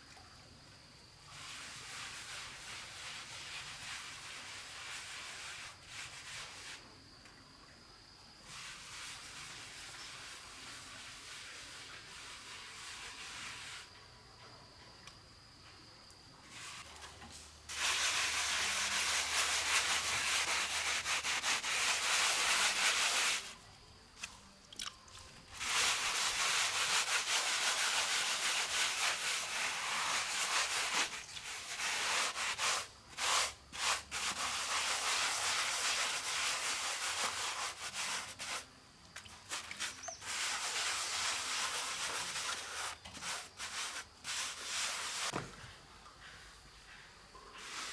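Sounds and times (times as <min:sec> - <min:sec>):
tool scraping wet mortar: 0:17.7 - 0:23.6, 0:25.2 - 0:45.5.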